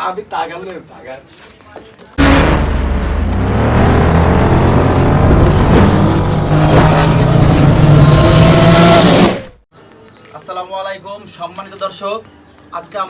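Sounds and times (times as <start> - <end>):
motor revving drone: 2.2 - 9.6.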